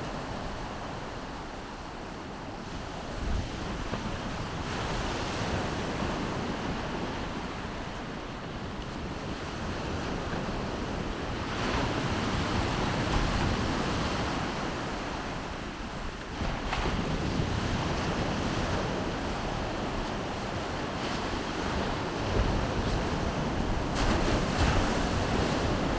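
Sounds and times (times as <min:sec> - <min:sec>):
wind buffeting microphone: 0:00.0 - 0:25.9
surf washing onto shore: 0:11.8 - 0:25.9.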